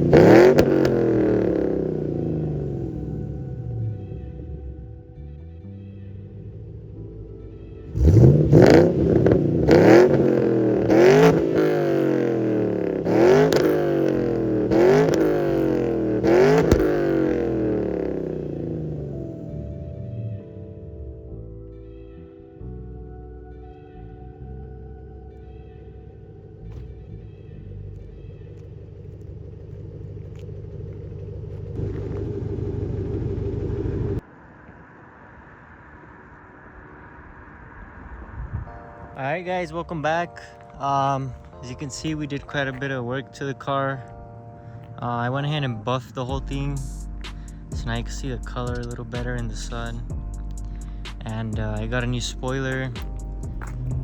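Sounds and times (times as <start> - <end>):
car engine revving: 0.0 - 5.6, 6.2 - 21.3, 26.2 - 34.4, 46.2 - 54.0.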